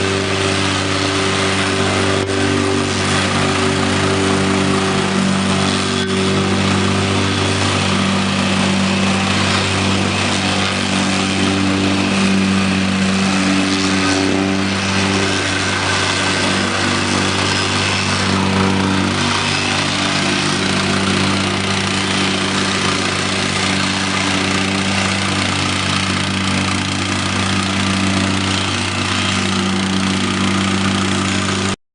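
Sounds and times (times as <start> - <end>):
plate compactor engine running: 0.0 - 31.8.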